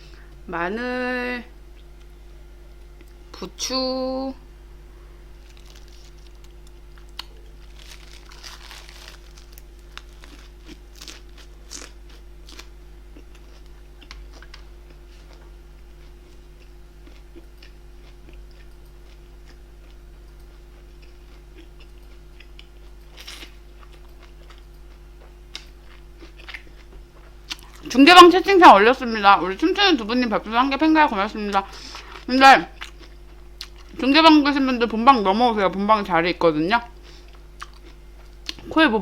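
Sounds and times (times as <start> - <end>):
low hum: 0.0 - 25.6
person chewing and crunching food: 5.4 - 27.9, 31.7 - 34.0, 37.1 - 38.7.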